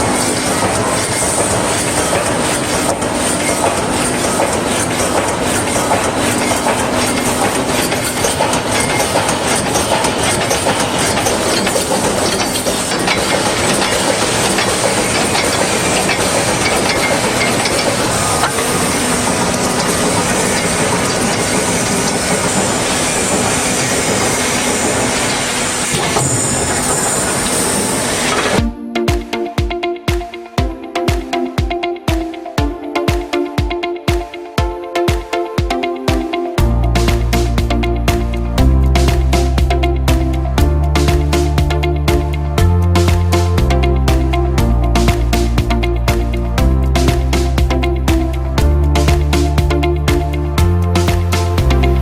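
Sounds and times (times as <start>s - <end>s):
welding machine clattering: 0.0s - 28.7s.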